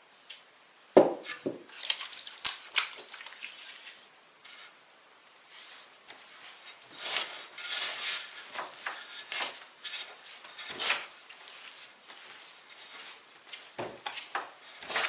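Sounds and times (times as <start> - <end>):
objects scraping and knocking: 5.6 - 15.0.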